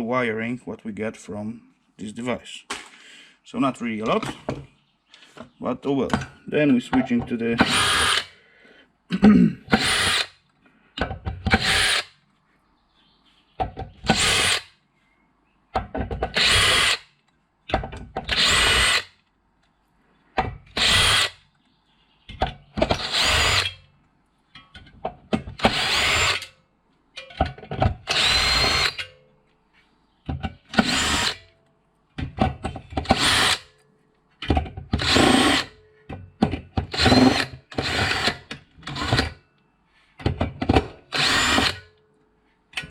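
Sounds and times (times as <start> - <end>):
power drill whining in bursts: 7.6 - 8.3, 9.7 - 10.3, 11.5 - 12.1, 16.4 - 17.0, 18.3 - 19.1, 20.8 - 21.4, 23.0 - 23.8, 25.6 - 26.5, 28.0 - 29.0, 30.7 - 31.4, 33.0 - 33.6, 35.0 - 35.7, 36.9 - 39.4, 41.1 - 41.9.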